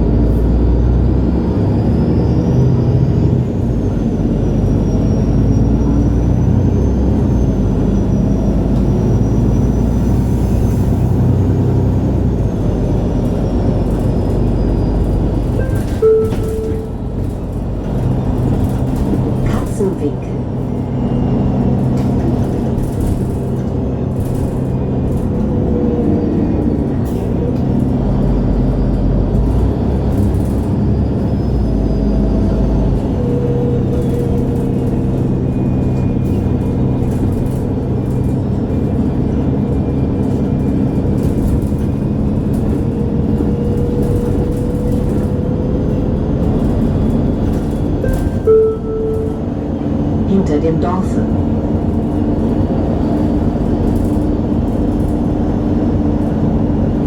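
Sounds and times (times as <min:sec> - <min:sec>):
bus engine hum: 0:00.0 - 0:57.0
deep rumble: 0:00.0 - 0:57.0
brief tone: 0:14.8 - 0:17.4, 0:48.0 - 0:49.9.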